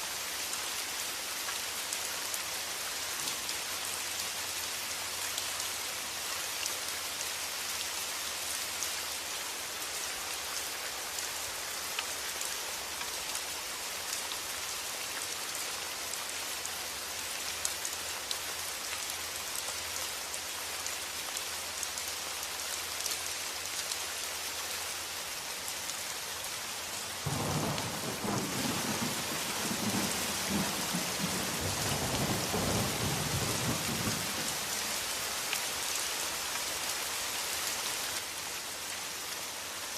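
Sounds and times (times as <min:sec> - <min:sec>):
rain pattering: 0:16.1 - 0:39.0.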